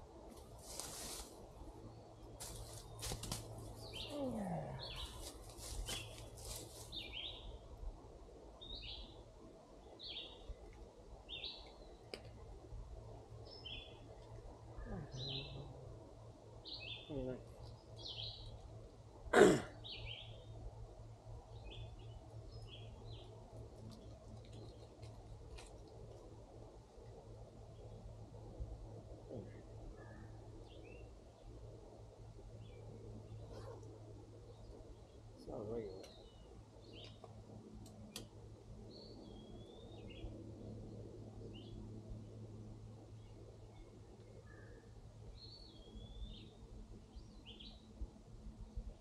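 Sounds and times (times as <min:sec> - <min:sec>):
low steady hum: 0:00.0 - 0:49.0
small birds chirping: 0:01.8 - 0:07.6, 0:13.4 - 0:15.9, 0:16.6 - 0:18.8, 0:19.7 - 0:20.6, 0:21.5 - 0:26.2, 0:32.5 - 0:38.2, 0:43.1 - 0:48.0.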